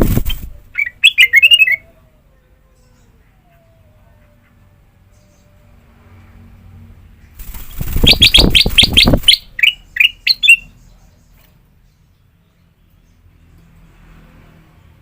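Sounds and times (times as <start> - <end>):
bulbul singing: 0.0 - 1.9, 7.5 - 13.2.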